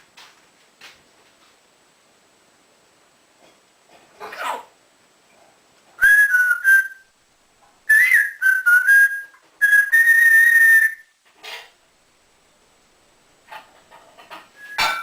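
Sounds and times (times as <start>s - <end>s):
parrot whistling: 6.0s - 7.1s, 7.9s - 11.1s, 14.6s - 15.0s.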